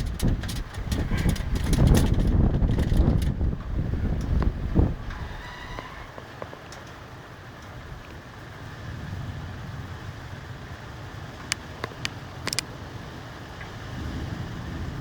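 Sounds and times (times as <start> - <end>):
run of sharp clicks: 0.0 - 3.4
thunder rumbling: 0.0 - 6.2.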